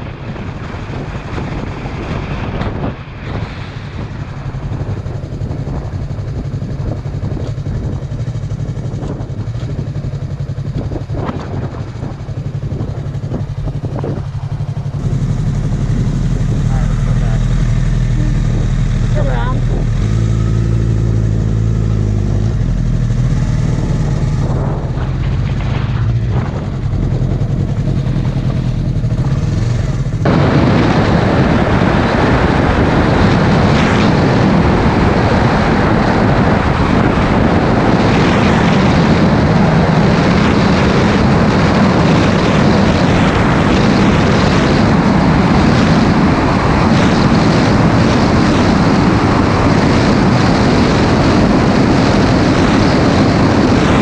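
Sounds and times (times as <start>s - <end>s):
wind rush on microphone: 0.0s - 54.0s
motorcycle engine idling: 3.9s - 30.4s.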